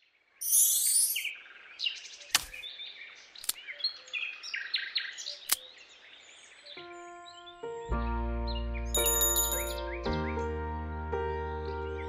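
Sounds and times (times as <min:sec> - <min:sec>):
birds chirping and twittering: 0:00.0 - 0:07.9
music: 0:06.8 - 0:12.0.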